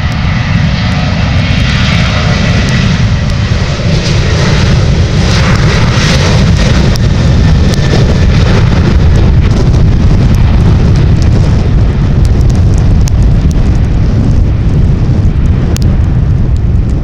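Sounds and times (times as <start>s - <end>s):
jet engines roaring: 0.0s - 17.0s
faint rain ticks: 12.2s - 13.7s.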